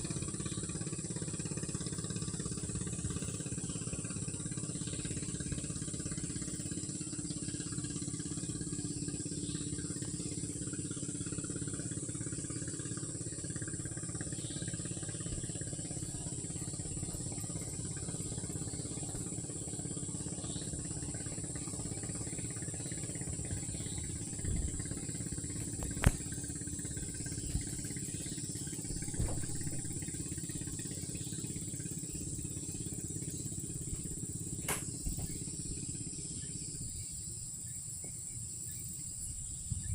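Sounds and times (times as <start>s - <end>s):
crickets droning: 0.0s - 39.9s
low engine-like hum: 0.0s - 39.9s
sharp click: 34.6s - 35.4s.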